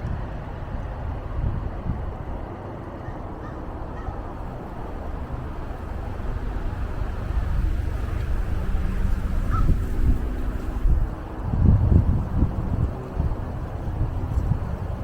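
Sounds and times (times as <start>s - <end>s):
wind blowing over microphone: 4.1s - 15.0s.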